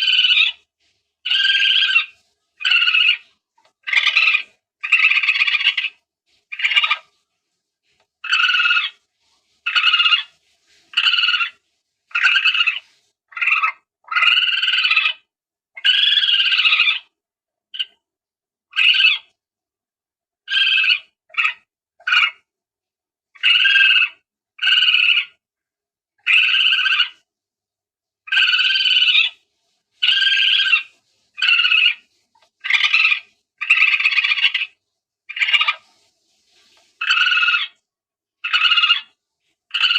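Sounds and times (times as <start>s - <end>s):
palm civet calls: 0.0s - 0.6s, 1.2s - 7.1s, 8.2s - 9.0s, 9.6s - 10.3s, 10.9s - 17.1s, 17.8s - 18.0s, 18.7s - 19.3s, 20.5s - 22.4s, 23.4s - 25.4s, 26.2s - 27.2s, 28.3s - 29.4s, 30.0s - 35.8s, 37.0s - 37.8s, 38.4s - 39.9s.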